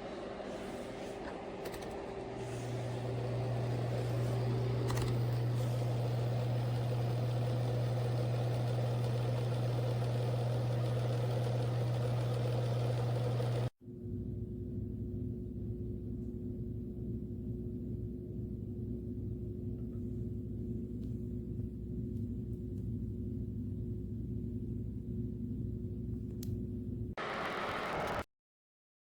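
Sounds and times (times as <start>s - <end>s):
electric heater humming: 0.0s - 13.7s.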